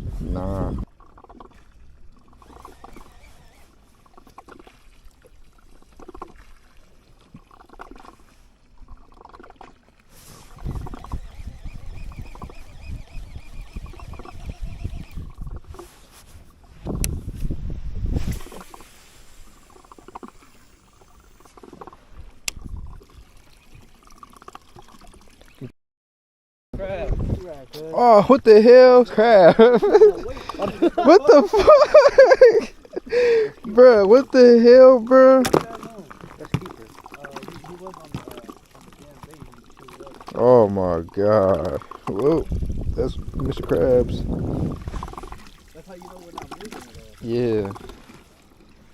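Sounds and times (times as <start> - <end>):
water lapping against boat hull: 0.0 - 25.7, 26.8 - 48.9.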